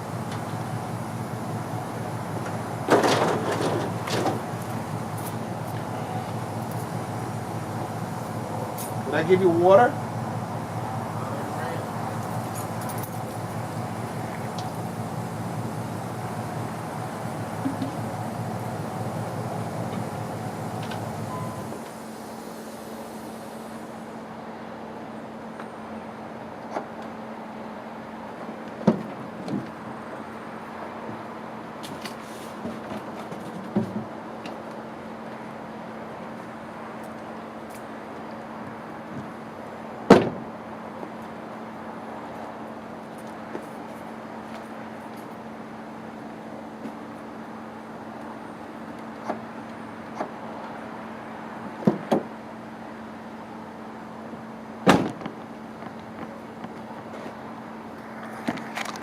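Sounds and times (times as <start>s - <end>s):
steady mechanical hum: 0.0s - 59.0s
steady hum: 3.9s - 24.5s.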